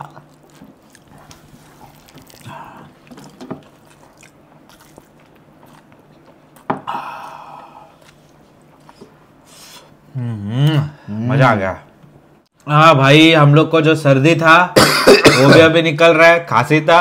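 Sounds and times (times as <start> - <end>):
man chewing with wet mouth noises: 0.0 - 10.0.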